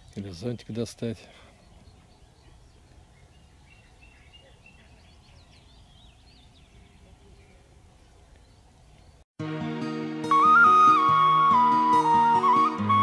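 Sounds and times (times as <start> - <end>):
low outdoor background noise: 0.0 - 9.2
faint birdsong chirps and whistles: 1.2 - 9.2.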